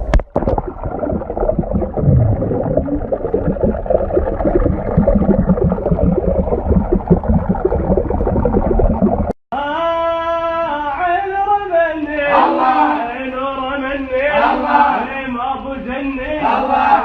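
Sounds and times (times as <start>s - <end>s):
muffled water gurgling and sloshing: 0.0s - 9.4s.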